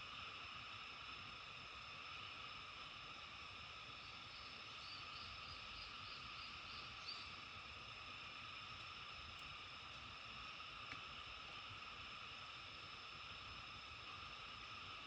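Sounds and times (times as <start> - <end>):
insects buzzing: 0.0 - 15.0
frogs croaking: 1.8 - 11.4.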